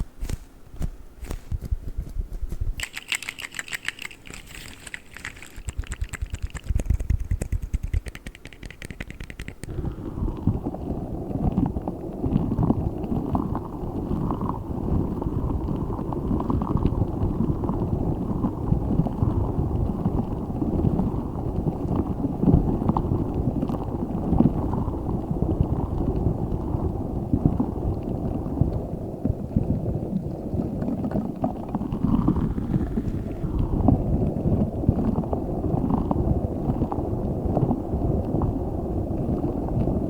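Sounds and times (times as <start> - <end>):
clicks: 2.8 - 9.8.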